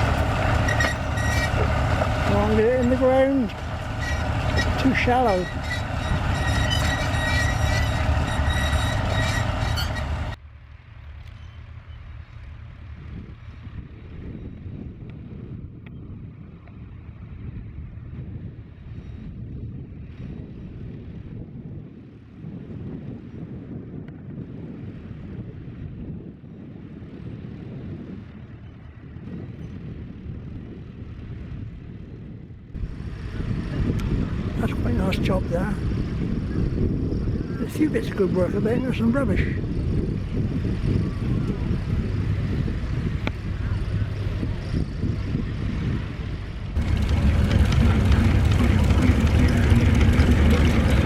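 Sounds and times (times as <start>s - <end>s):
wind buffeting microphone: 0.0s - 10.4s, 11.8s - 51.0s
tractor engine running: 0.0s - 14.3s, 32.8s - 51.0s
faint low rumble: 39.6s - 51.0s.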